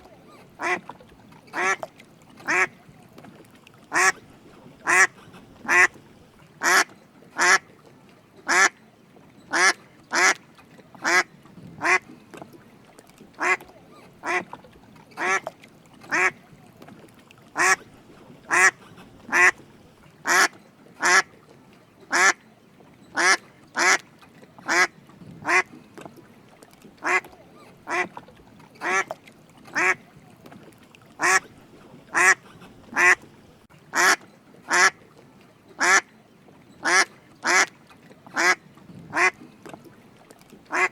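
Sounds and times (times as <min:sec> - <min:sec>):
duck quacking: 0:00.0 - 0:00.9, 0:01.6 - 0:01.8, 0:02.5 - 0:02.8, 0:03.9 - 0:04.2, 0:04.8 - 0:06.0, 0:06.6 - 0:07.6, 0:09.5 - 0:10.4, 0:13.4 - 0:13.6, 0:14.2 - 0:14.5, 0:15.2 - 0:15.4, 0:16.1 - 0:16.4, 0:17.6 - 0:17.8, 0:18.5 - 0:19.6, 0:20.2 - 0:21.3, 0:22.1 - 0:22.4, 0:23.2 - 0:24.0, 0:24.7 - 0:25.7, 0:27.0 - 0:27.3, 0:27.9 - 0:28.1, 0:28.8 - 0:29.1, 0:29.8 - 0:30.0, 0:31.2 - 0:31.5, 0:32.1 - 0:33.2, 0:33.9 - 0:35.0, 0:35.8 - 0:36.0, 0:36.8 - 0:37.7, 0:38.4 - 0:39.4.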